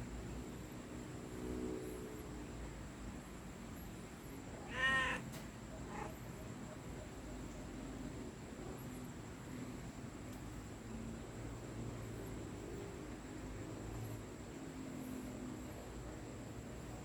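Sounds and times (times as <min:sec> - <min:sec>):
cat meowing: 0:04.6 - 0:05.3
faint low cat call: 0:04.6 - 0:06.2.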